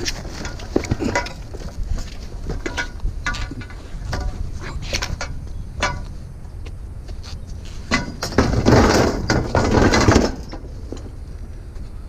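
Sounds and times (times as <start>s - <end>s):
metal parts clattering: 0.0s - 1.7s, 7.9s - 11.1s.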